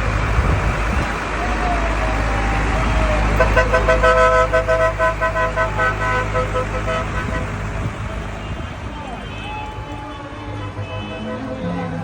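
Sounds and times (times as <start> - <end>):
tractor engines rumbling: 0.0 - 12.0
two-tone vehicle horn beeps: 3.4 - 7.6, 8.4 - 12.0.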